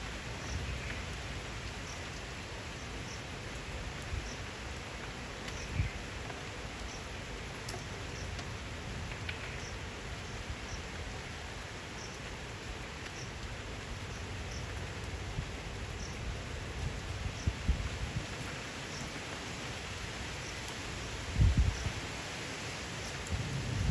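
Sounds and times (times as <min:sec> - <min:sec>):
steady rain hissing: 0:00.0 - 0:23.9
gusting wind rumbling: 0:15.3 - 0:18.5, 0:21.2 - 0:22.1, 0:23.2 - 0:23.9.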